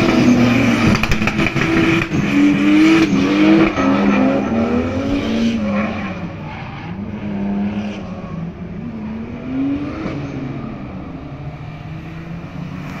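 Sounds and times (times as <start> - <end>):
car engine revving hard: 0.0 - 6.4.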